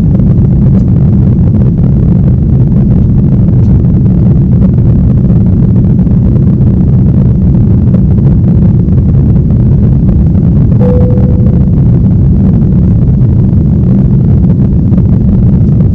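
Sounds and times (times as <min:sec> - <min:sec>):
vehicle cabin rumble: 0:00.0 - 0:15.9.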